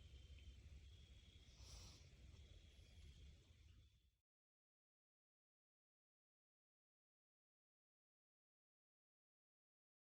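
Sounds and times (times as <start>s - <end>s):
soft hiss: 1.2s - 2.4s.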